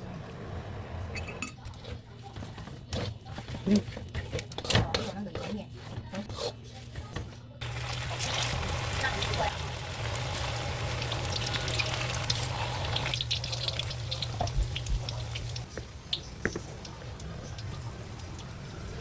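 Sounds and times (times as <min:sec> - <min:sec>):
food frying in hot oil: 0:07.6 - 0:19.0.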